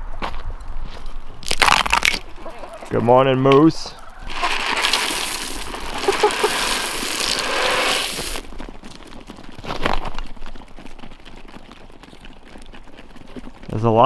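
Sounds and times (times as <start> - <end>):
chicken feed pouring hiss: 2.3 - 8.6.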